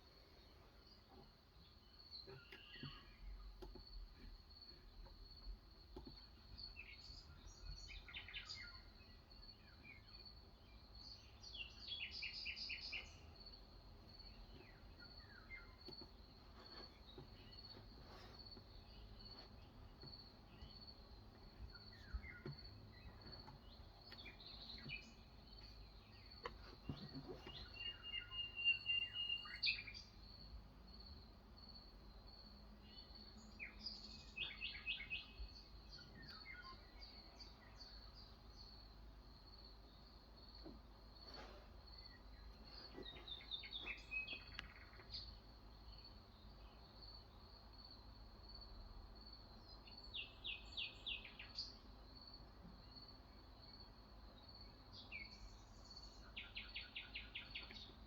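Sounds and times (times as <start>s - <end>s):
birds chirping: 0.0s - 13.4s, 14.0s - 30.2s, 41.9s - 46.0s.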